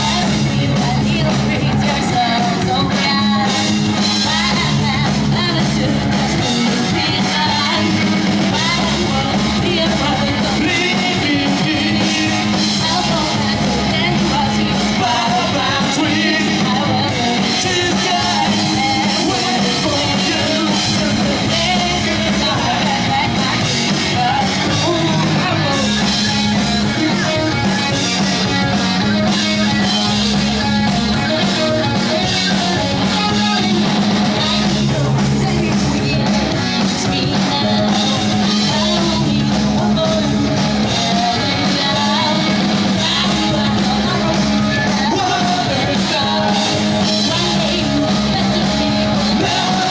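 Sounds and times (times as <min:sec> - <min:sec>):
bass: 0:00.0 - 0:49.9
distorted electric guitars: 0:00.0 - 0:49.9
drums: 0:00.0 - 0:49.9
person singing: 0:00.0 - 0:49.9.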